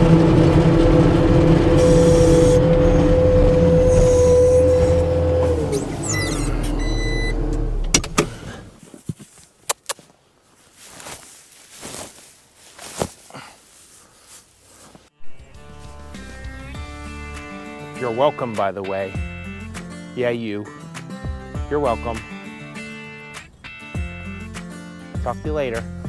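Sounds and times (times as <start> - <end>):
loader engine whining: 0.0 - 9.0.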